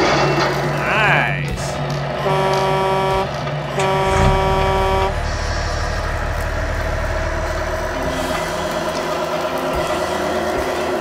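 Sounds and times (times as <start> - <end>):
diesel engine: 0.0 - 11.0
truck air horn blasts: 1.0 - 8.8.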